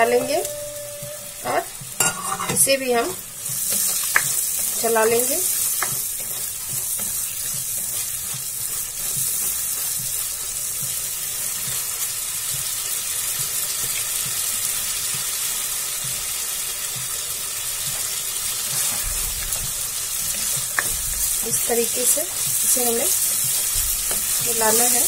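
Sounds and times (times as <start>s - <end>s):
spatula stirring: 0.0s - 11.0s, 19.7s - 25.0s
sauce sizzling and bubbling: 0.0s - 25.0s.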